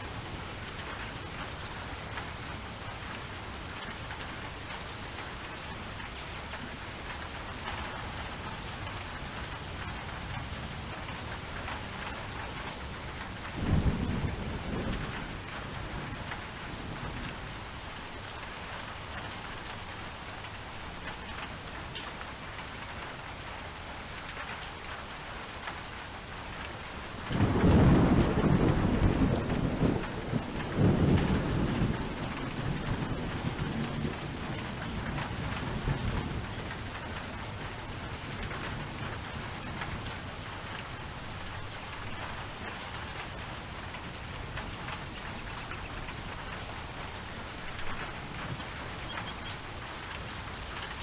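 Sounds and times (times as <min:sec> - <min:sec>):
rain falling: 0:00.0 - 0:51.0
thunder rolling: 0:27.4 - 0:36.5.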